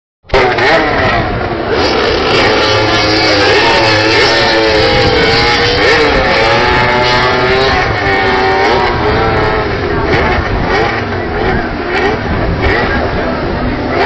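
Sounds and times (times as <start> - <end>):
racing motorcycles revving: 0.2 - 14.0.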